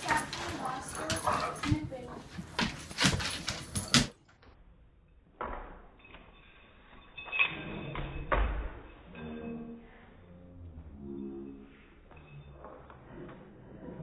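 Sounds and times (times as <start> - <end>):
dogs scuffling at play: 0.0 - 4.2
low stretched pitched sounds: 9.2 - 11.9.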